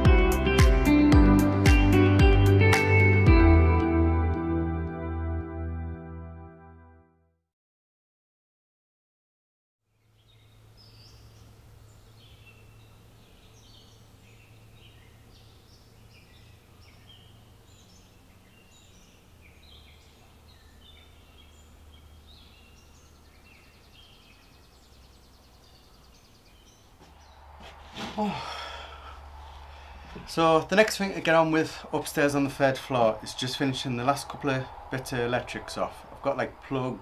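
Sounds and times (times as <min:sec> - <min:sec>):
birds chirping and singing: 0:10.0 - 0:37.0
low outdoor rumble: 0:10.6 - 0:37.0.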